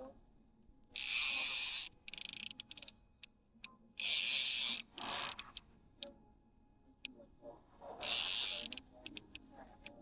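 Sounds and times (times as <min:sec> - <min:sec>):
fishing reel ratcheting: 0:01.0 - 0:02.9, 0:04.0 - 0:05.6, 0:08.0 - 0:09.4.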